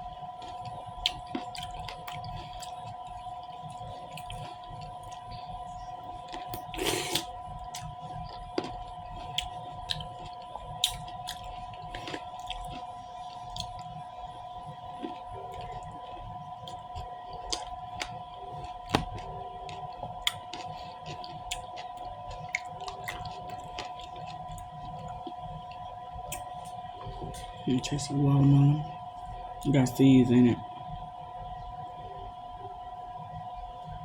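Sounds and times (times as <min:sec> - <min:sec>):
faint hum: 0:00.0 - 0:34.0
person chewing: 0:00.3 - 0:14.0, 0:15.0 - 0:27.6.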